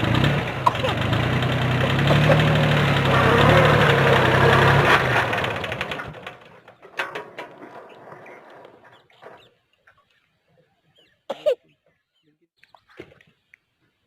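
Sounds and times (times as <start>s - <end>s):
tractor diesel engine running: 0.0s - 6.8s.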